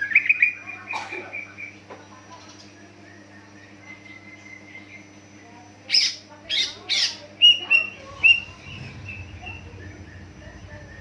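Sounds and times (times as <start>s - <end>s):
bird harsh chirps: 5.9s - 11.0s.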